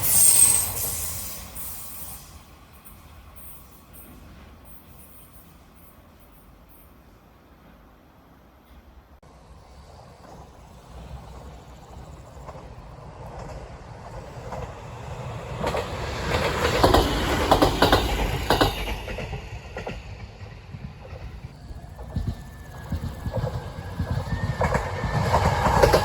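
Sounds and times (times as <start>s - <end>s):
train wheels clattering on rails: 9.8s - 26.0s.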